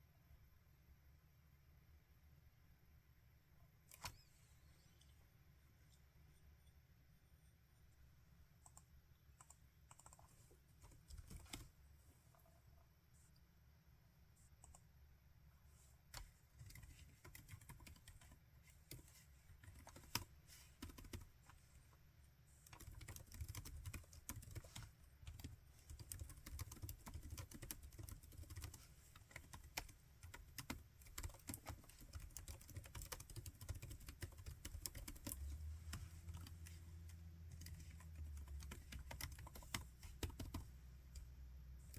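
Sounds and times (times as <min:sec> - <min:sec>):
laptop keyboard typing: 0:08.6 - 0:11.8, 0:14.6 - 0:14.9, 0:16.2 - 0:21.7, 0:22.6 - 0:41.9.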